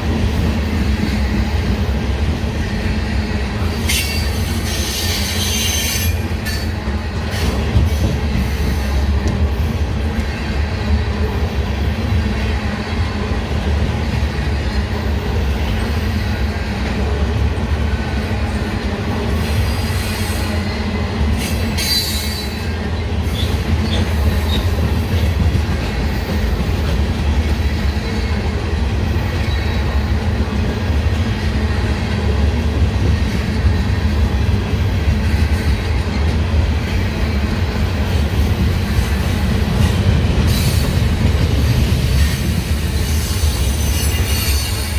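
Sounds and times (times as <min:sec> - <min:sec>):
train wheels rumbling on rails: 0:00.0 - 0:44.9
high-pitched wheel squeal: 0:03.9 - 0:06.6, 0:43.0 - 0:44.9.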